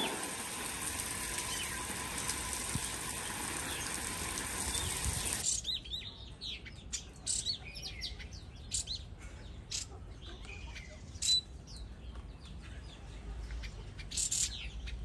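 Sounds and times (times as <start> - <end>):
steady hiss: 0.0 - 5.4
small birds chirping: 0.0 - 15.0.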